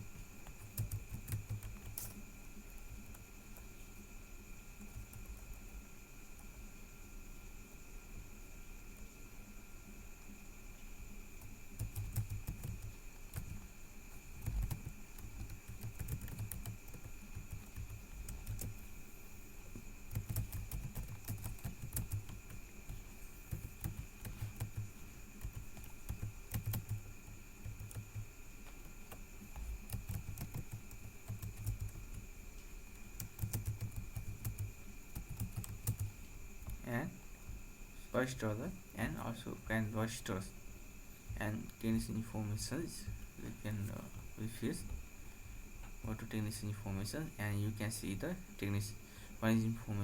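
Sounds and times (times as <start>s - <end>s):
typing on keyboard: 0.5s - 2.2s, 11.4s - 13.7s, 14.4s - 18.9s, 20.1s - 32.2s, 33.2s - 36.8s.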